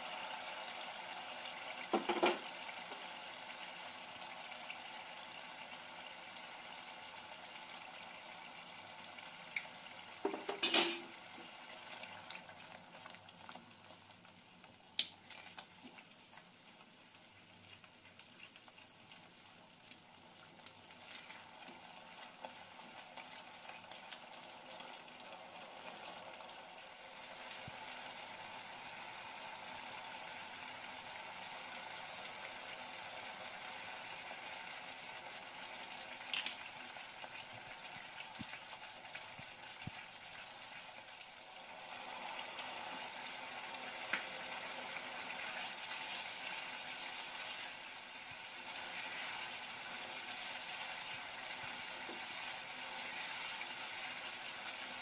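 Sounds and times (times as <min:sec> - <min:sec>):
paste sizzling in oil: 0:15.2 - 0:55.0.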